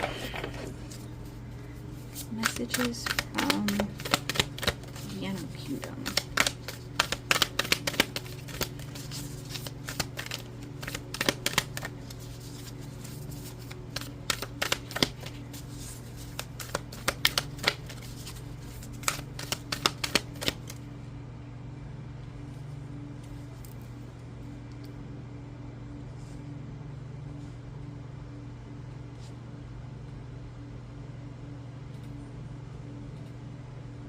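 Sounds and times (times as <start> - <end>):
cards being shuffled: 0.0 - 20.8
steady low hum: 0.0 - 34.0.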